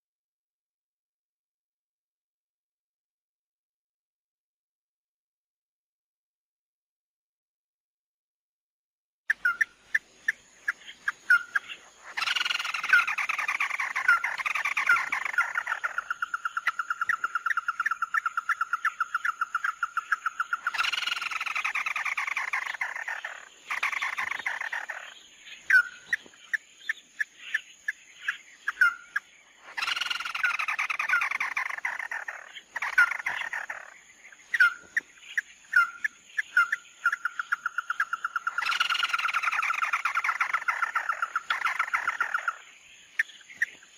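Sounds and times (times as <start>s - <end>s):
bird calls: 9.3s - 43.9s
bird trill: 9.3s - 43.9s.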